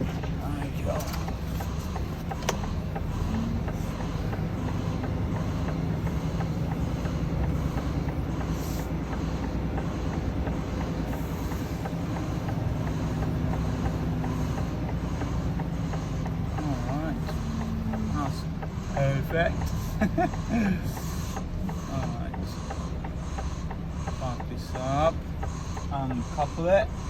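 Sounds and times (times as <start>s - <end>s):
truck diesel engine running: 0.0s - 27.0s.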